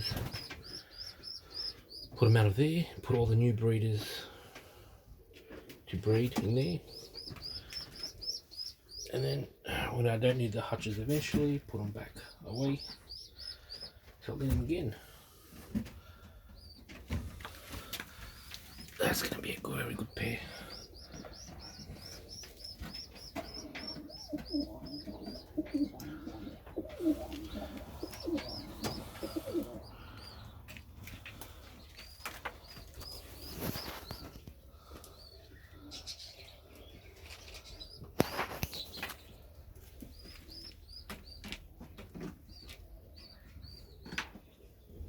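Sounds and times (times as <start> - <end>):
birds chirping: 0.0 - 45.0
pigeons cooing: 17.7 - 41.6.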